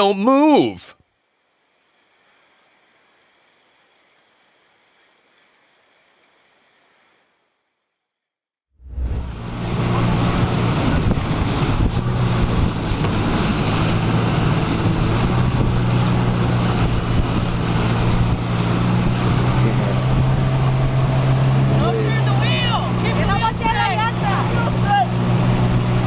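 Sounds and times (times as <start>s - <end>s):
rushing water: 0.0s - 0.8s, 9.1s - 26.0s
boat engine humming: 9.1s - 26.0s.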